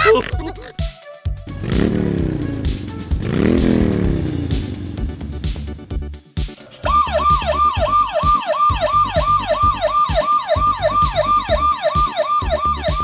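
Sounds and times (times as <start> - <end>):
toy electronic siren wailing: 6.8 - 13.0.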